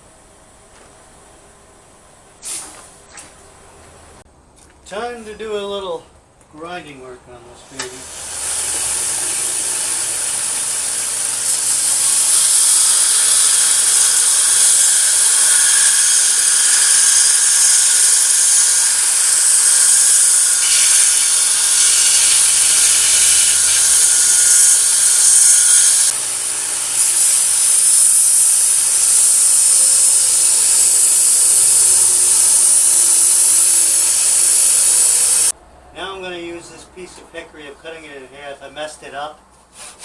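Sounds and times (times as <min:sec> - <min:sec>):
power grinder grinding steel: 0:07.7 - 0:35.5.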